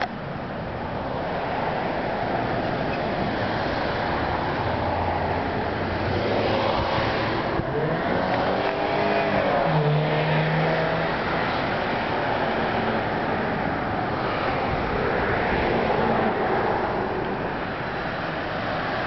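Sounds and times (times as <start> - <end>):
steady rushing noise: 11.0 - 19.0.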